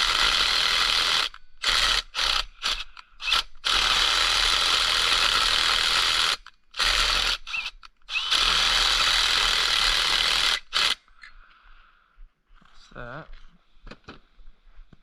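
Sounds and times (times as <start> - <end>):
power tool whirring: 0.0 - 11.2.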